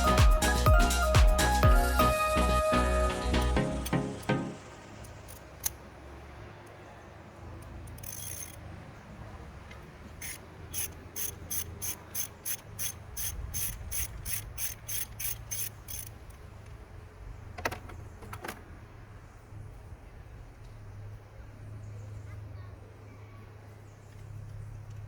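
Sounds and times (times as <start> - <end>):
ratchet wrench clicking: 5.0 - 5.8, 7.6 - 8.7, 10.1 - 16.4.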